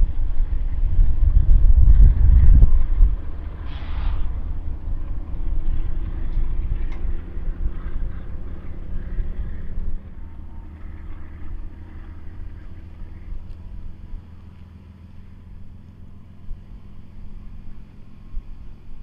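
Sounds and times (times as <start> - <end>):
freight train rumbling: 0.0 - 19.0
short hiss: 3.6 - 4.4.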